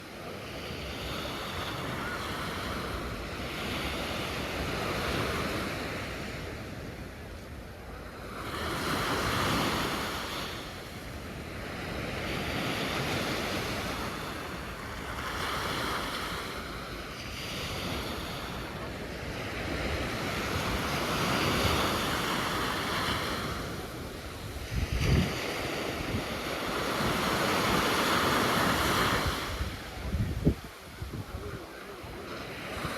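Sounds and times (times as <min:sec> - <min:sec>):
sea waves breaking on shore: 0:00.0 - 0:32.9
wind buffeting microphone: 0:23.7 - 0:31.8.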